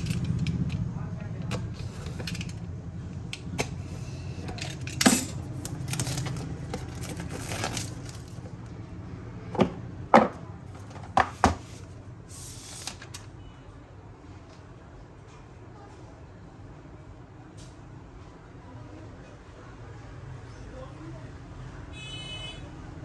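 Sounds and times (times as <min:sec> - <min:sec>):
low steady hum: 0:00.0 - 0:13.2.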